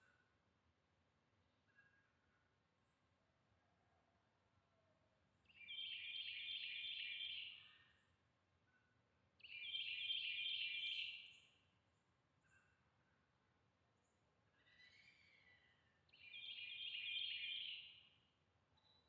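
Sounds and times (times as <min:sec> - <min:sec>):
songbird singing: 0:05.5 - 0:08.1, 0:09.4 - 0:11.7, 0:14.0 - 0:19.0.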